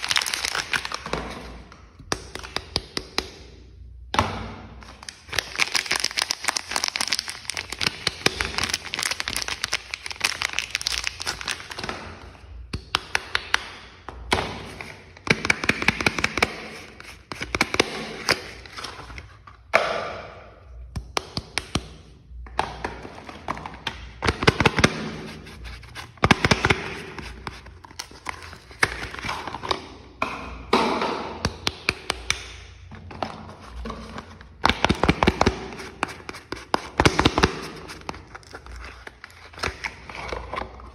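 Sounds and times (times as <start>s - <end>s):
packaging crinkling and tearing: 0.0s - 1.4s, 5.0s - 11.8s, 34.6s - 40.9s.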